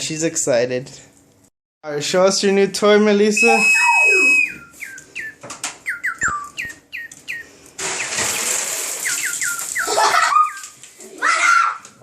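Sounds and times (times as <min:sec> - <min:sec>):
toy bird chirping: 0:03.5 - 0:10.7.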